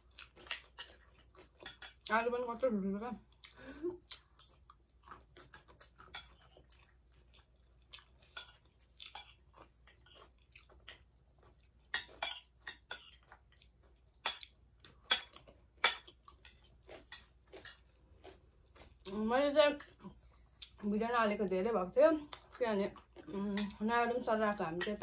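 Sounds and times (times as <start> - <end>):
chewing crunchy snack: 0.0 - 2.1, 3.2 - 19.2, 22.2 - 23.8.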